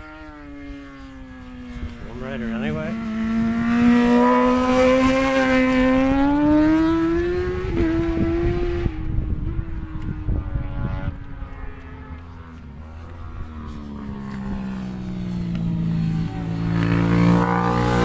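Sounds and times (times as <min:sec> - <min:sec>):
race motorcycle accelerating past: 0:00.0 - 0:18.0
wind buffeting microphone: 0:01.6 - 0:18.0.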